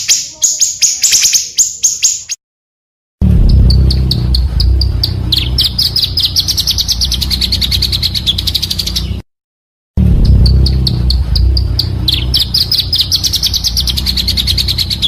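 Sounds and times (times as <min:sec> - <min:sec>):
high bird chirps: 0:00.0 - 0:02.4, 0:03.4 - 0:09.2, 0:10.2 - 0:15.0
steady low hum: 0:03.2 - 0:09.2, 0:10.0 - 0:15.0
fast high bird trill: 0:03.6 - 0:09.2, 0:10.3 - 0:15.0.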